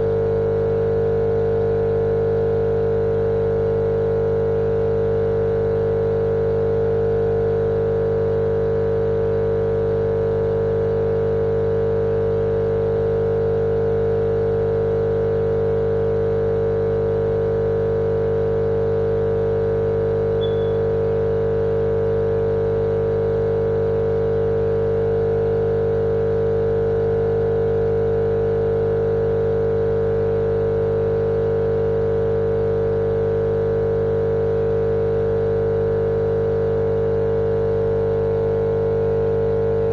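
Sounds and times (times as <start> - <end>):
humming white noise drone: 0.0 - 1.7, 16.4 - 33.2, 35.6 - 39.9.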